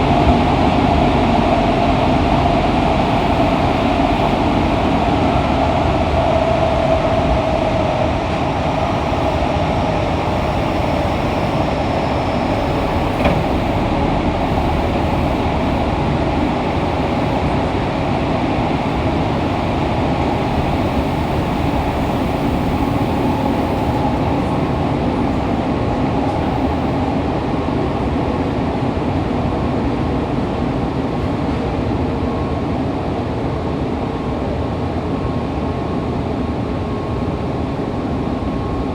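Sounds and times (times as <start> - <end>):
train motor tone: 0.0 - 28.0
train wheels rumbling on rail: 0.0 - 38.9.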